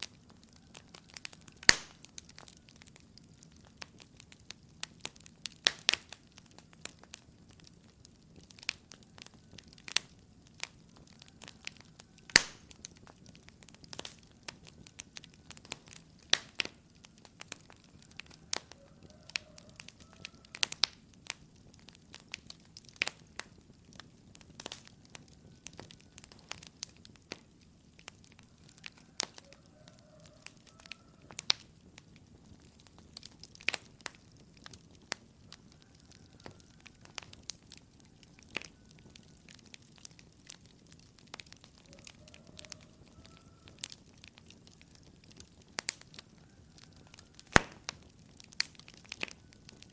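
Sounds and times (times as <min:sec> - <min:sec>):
fire pops and snaps: 0:00.0 - 0:49.9
wood fire crackling: 0:00.0 - 0:49.9.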